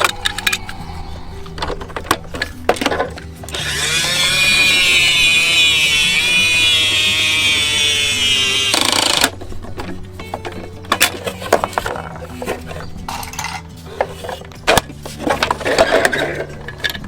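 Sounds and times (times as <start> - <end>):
background music: 0.0 - 17.0
toy motor whirring: 3.5 - 9.3.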